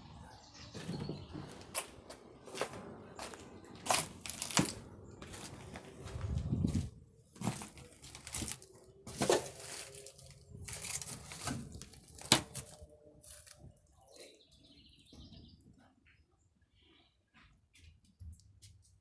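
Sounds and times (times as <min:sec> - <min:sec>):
footsteps crunching over debris: 0:00.8 - 0:13.8.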